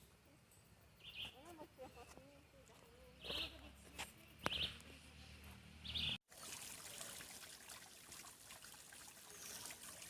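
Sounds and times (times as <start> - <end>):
creek trickling: 5.9 - 10.0.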